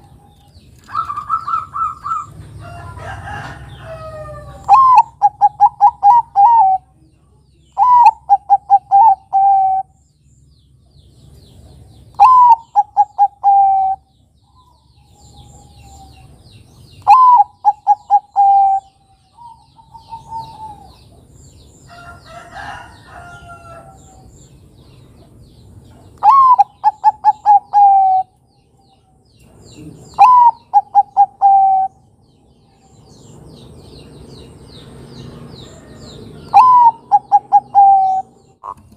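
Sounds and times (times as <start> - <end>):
dove cooing: 0.8 - 2.5, 3.4 - 6.9, 7.8 - 9.9, 12.2 - 14.1, 17.0 - 21.2, 26.2 - 28.4, 29.7 - 32.0, 35.8 - 38.9.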